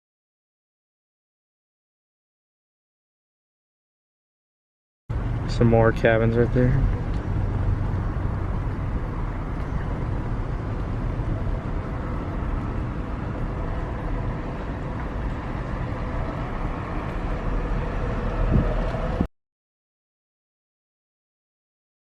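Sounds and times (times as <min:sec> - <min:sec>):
car engine and tyre rumble: 0:05.1 - 0:19.3.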